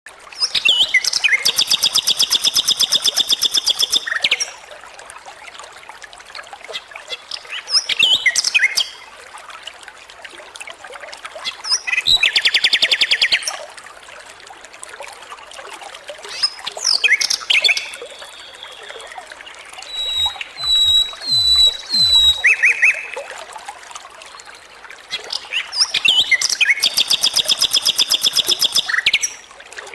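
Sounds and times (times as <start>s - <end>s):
bird singing whistles and trills: 0.4s - 4.5s, 16.9s - 19.2s, 19.8s - 23.2s, 25.3s - 29.4s.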